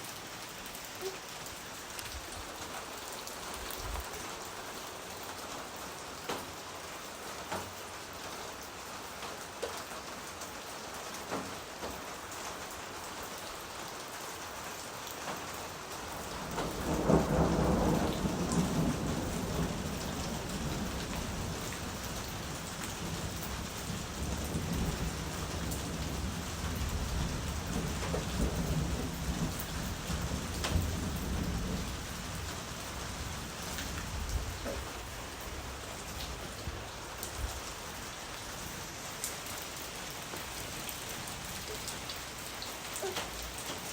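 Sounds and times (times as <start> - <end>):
steady rain: 0.0 - 43.9
low rumble of thunder: 16.0 - 38.8.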